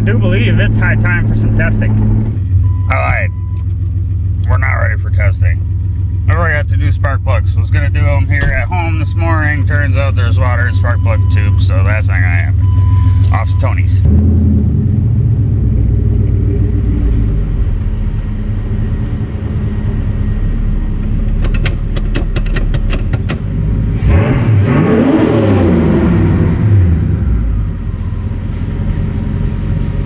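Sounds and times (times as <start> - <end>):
car engine rumbling: 0.0 - 30.0.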